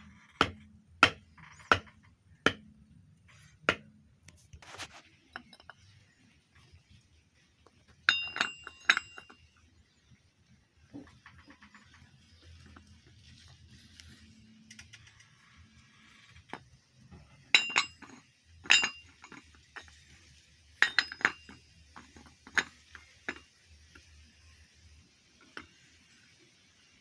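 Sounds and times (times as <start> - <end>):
metal tools clinking: 8.1 - 9.5, 17.6 - 20.0, 20.8 - 23.5.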